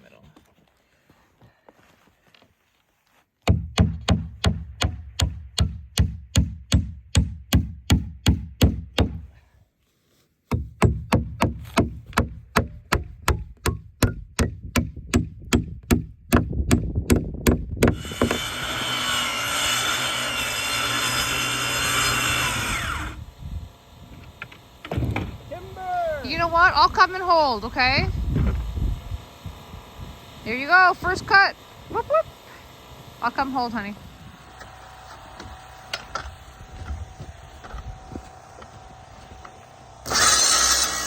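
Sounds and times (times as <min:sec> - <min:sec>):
power saw cutting lumber: 0:17.8 - 0:41.0.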